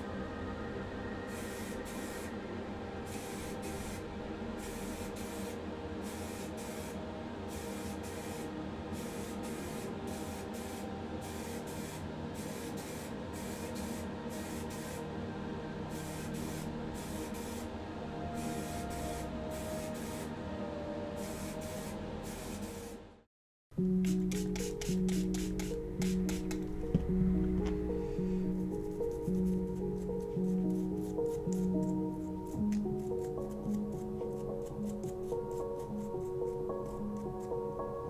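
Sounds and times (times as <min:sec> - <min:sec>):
music: 0:00.0 - 0:38.0
paint spraying hiss: 0:01.3 - 0:02.4, 0:03.0 - 0:04.0, 0:04.6 - 0:15.1, 0:15.9 - 0:17.8, 0:23.9 - 0:26.9.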